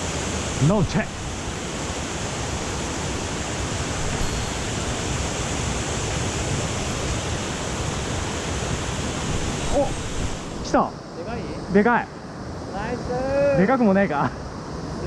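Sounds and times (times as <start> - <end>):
water rushing over rocks: 0.0 - 10.8.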